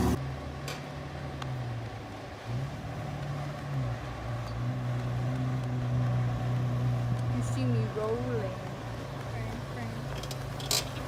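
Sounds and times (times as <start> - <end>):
car engine idling: 0.0 - 0.2
light engine rev: 0.0 - 0.2.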